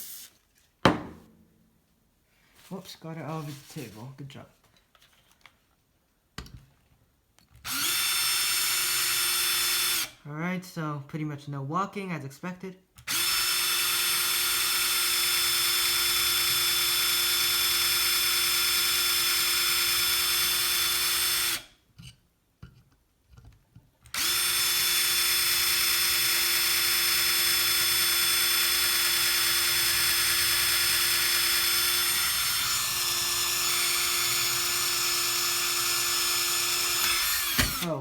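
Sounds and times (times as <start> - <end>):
power drill cutting into steel: 7.7 - 10.2, 13.1 - 21.7, 24.1 - 38.0.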